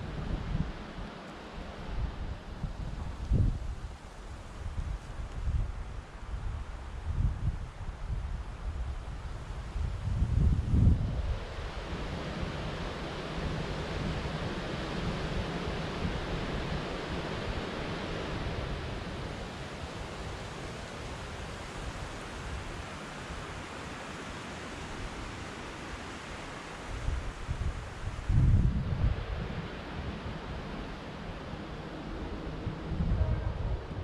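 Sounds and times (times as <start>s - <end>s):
rushing white noise hiss: 0.0s - 34.0s.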